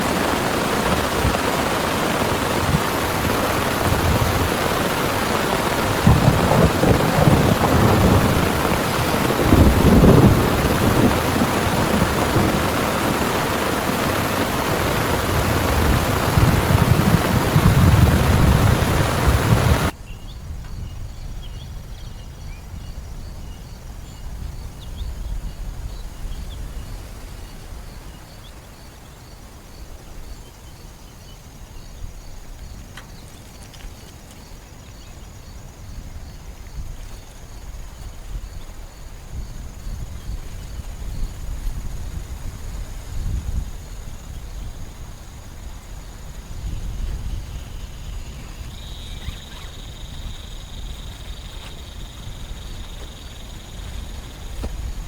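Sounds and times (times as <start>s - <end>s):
heavy rain pouring: 0.0s - 19.9s
thunder rumbling: 0.0s - 20.0s, 37.4s - 55.0s
insect chirps: 0.0s - 55.0s.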